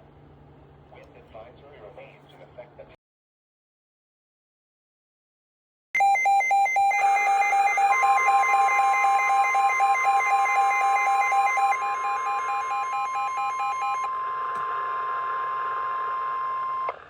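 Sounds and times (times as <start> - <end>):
rapid pulsing alarm beeps: 6.0 - 14.2
steady single-pitch alarm tone: 6.0 - 16.9.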